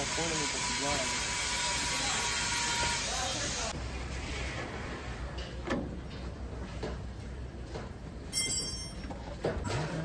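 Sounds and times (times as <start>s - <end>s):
high-pitched metallic ring: 8.3s - 9.3s.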